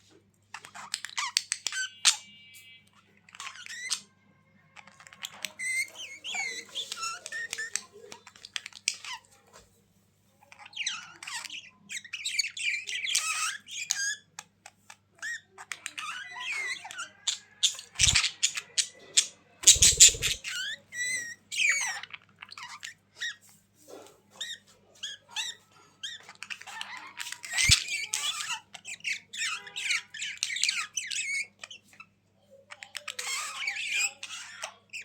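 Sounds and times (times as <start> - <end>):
budgerigars chattering: 17.0 - 21.9.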